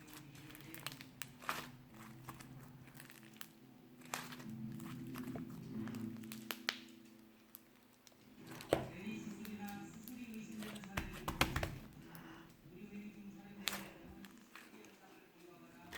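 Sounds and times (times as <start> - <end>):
slime squished by hand: 0.0 - 12.2.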